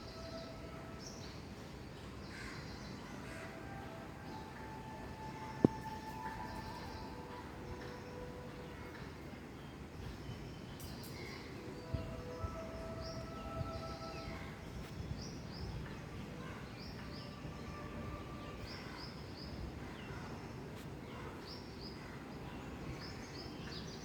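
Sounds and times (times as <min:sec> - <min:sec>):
bird chirping: 0:04.4 - 0:09.0.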